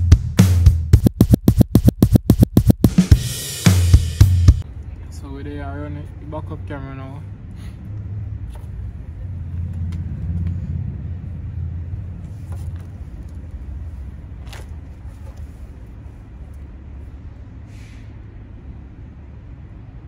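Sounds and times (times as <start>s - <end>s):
car engine rumbling: 1.7s - 17.6s.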